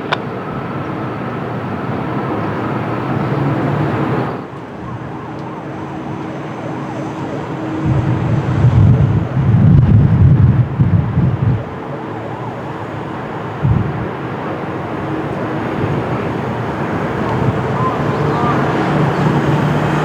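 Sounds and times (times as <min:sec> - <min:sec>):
jet engine roar: 0:00.0 - 0:20.0
faint high whine: 0:14.8 - 0:20.0.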